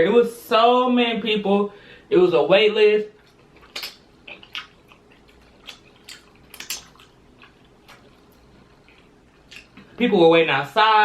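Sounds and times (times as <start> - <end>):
wet chewing: 3.1 - 10.0.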